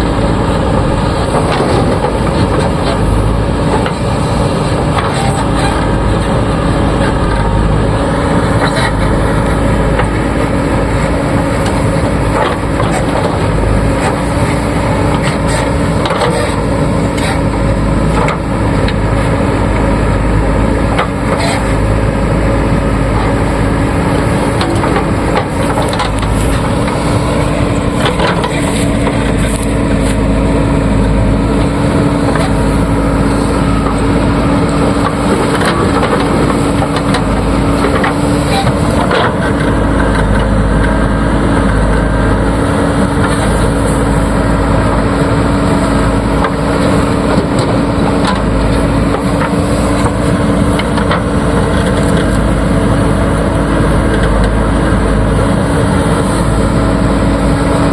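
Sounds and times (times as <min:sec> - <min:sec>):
clattering knocks of earth: 0:00.0 - 0:57.9
diesel engine running under load: 0:00.0 - 0:57.9.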